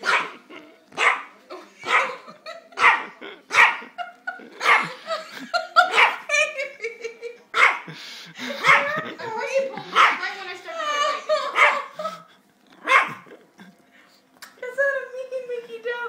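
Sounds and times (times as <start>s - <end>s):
dog barking and yipping: 0.0s - 0.4s, 1.0s - 2.2s, 2.8s - 3.9s, 4.6s - 5.0s, 5.9s - 6.3s, 8.6s - 9.0s, 9.9s - 10.2s, 11.5s - 11.9s, 12.8s - 13.3s.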